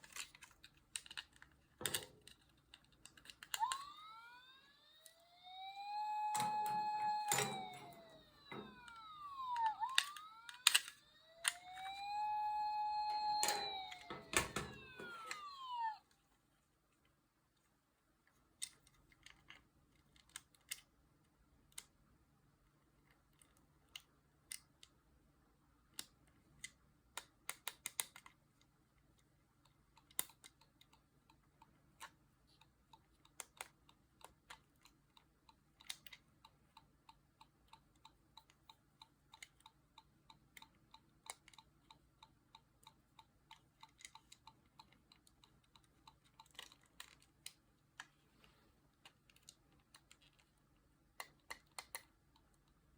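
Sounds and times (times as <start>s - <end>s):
small hard parts clicking: 0.0s - 16.0s, 25.9s - 48.2s, 49.0s - 52.9s.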